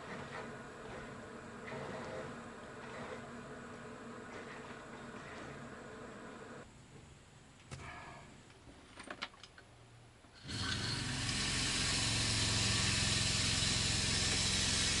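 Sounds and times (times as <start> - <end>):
water flowing hiss: 10.4 - 15.0
water pump humming: 10.4 - 15.0.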